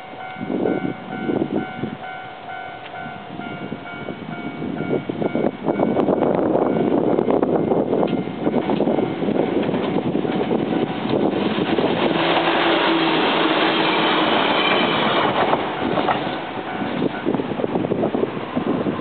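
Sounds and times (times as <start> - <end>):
train rail noise: 0.0 - 19.0.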